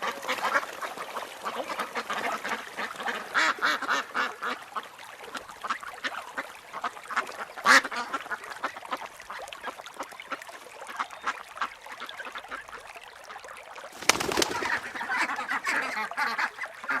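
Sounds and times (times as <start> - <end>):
ducks quacking: 14.0 - 17.0.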